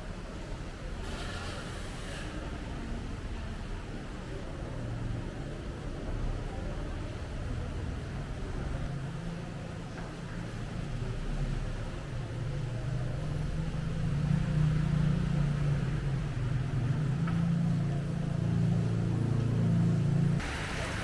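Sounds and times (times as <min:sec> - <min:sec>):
vehicle engine humming: 0:10.2 - 0:21.0.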